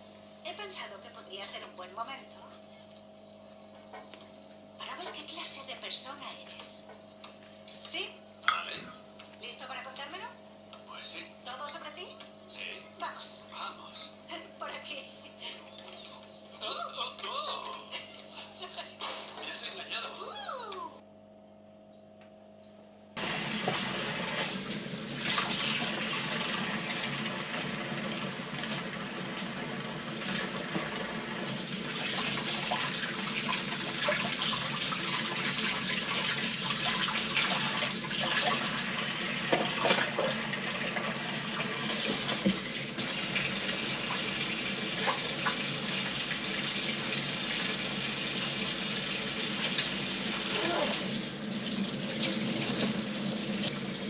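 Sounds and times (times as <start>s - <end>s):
tap running into a sink: 41.6s - 44.2s.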